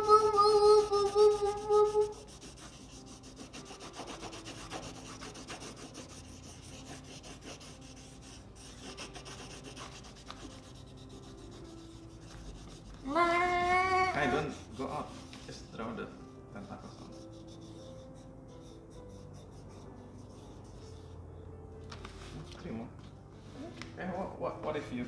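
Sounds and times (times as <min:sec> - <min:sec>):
crayon scratching on paper: 0:00.0 - 0:15.7, 0:16.8 - 0:21.1.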